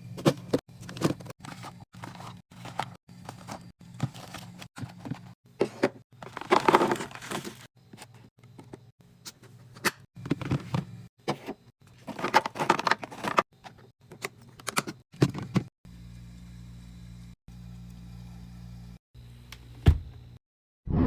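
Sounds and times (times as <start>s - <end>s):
plastic containers crinkling and knocking: 0.2s - 7.7s, 10.2s - 15.7s.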